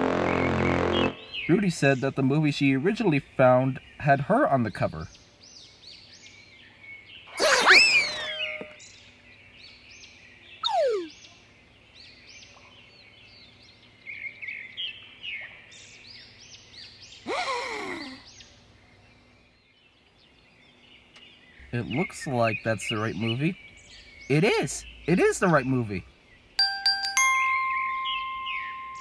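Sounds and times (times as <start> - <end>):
birds chirping: 0.1 - 29.0
bird falling glide calls: 7.3 - 8.8, 10.6 - 11.1.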